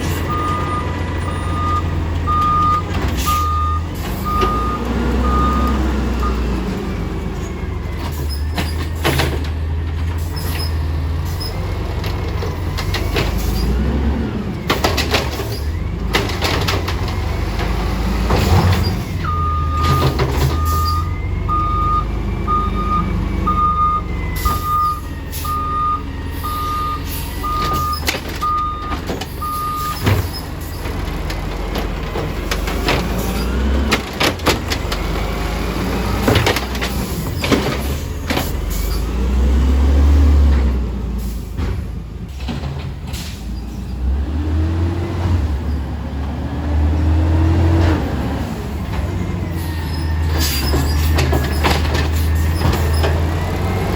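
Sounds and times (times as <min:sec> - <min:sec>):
truck engine running: 0:00.0 - 0:53.9
reversing alarm beeping: 0:00.2 - 0:08.5, 0:19.1 - 0:30.4
bangs and knocks of bins: 0:36.0 - 0:38.7.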